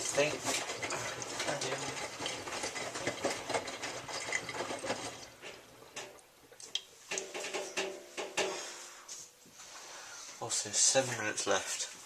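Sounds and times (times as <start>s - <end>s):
washing machine drum sloshing: 0.0s - 6.2s.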